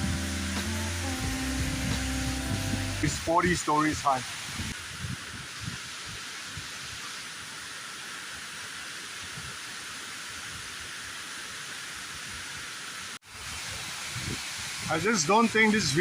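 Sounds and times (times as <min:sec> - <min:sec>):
waterfall rushing hiss: 0:00.0 - 0:16.0.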